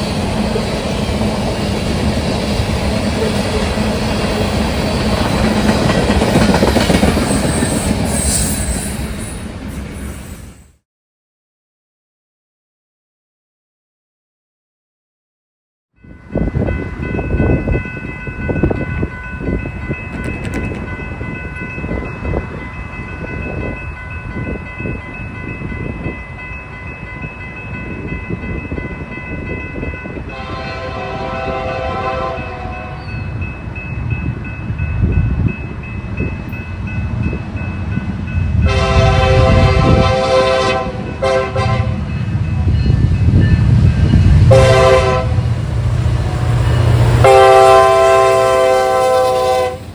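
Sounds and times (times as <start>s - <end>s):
locomotive engine and wheels rumbling: 0.0s - 10.6s, 16.1s - 49.9s
train air horn blasts: 30.3s - 33.1s, 38.6s - 42.9s, 44.2s - 45.5s, 47.1s - 49.9s.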